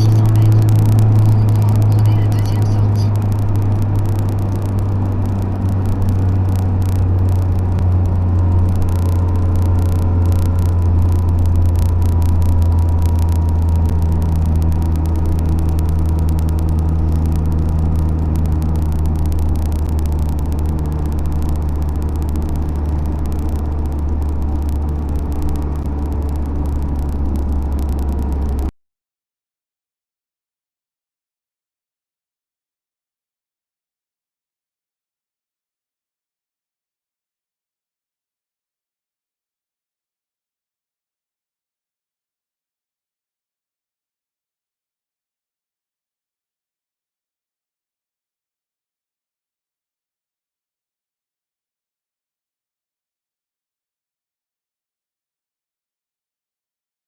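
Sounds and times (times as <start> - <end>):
car engine and road drone: 0.0 - 28.7.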